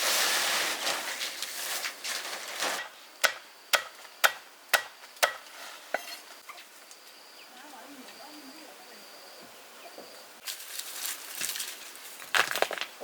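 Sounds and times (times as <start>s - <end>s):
rustling: 0.0s - 2.9s, 10.4s - 13.0s.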